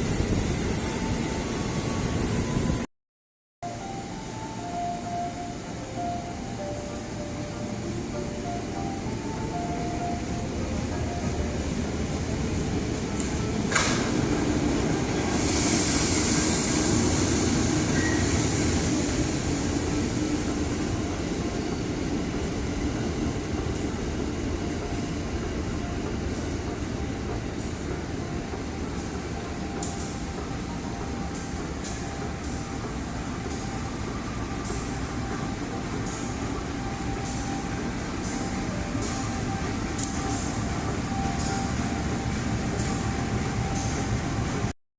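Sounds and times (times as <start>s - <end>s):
train rumble: 3.7s - 44.7s
burst of hiss: 15.3s - 18.6s.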